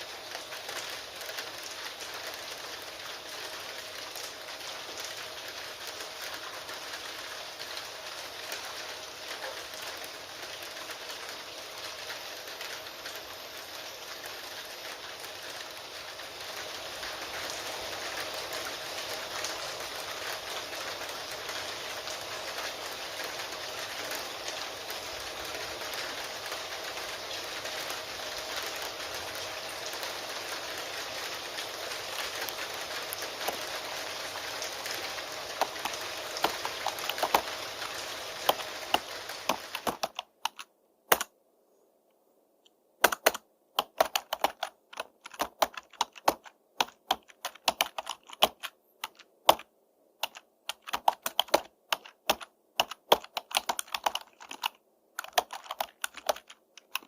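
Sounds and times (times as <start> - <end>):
steady rain: 0.0 - 41.4, 42.7 - 57.0
keyboard typing: 32.1 - 33.8, 34.8 - 41.3, 43.0 - 57.0.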